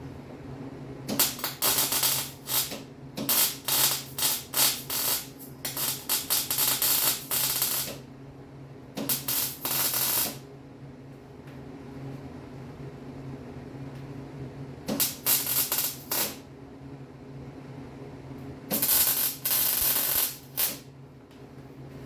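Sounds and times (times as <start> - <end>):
steady low hum: 0.0 - 22.0
welding arcs crackling: 1.1 - 8.0, 9.0 - 10.4, 14.9 - 16.4, 18.7 - 20.9.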